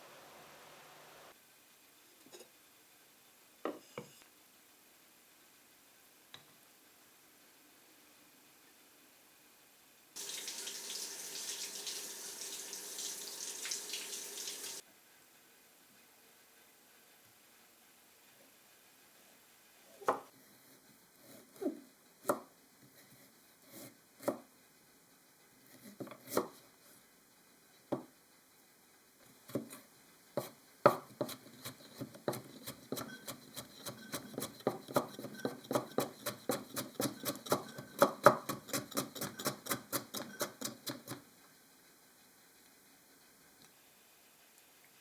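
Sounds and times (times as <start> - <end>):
knife chopping on cutting board: 30.4 - 41.2.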